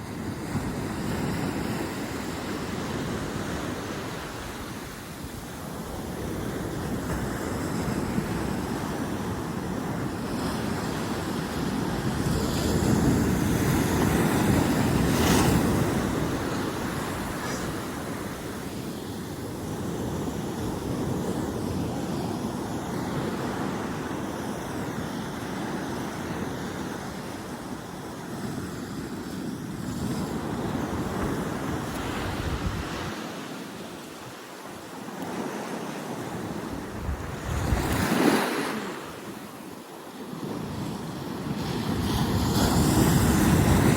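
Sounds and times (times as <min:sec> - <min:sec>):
wind buffeting microphone: 0:00.0 - 0:24.1, 0:25.0 - 0:33.4, 0:36.2 - 0:38.5
ocean waves breaking: 0:00.0 - 0:43.9.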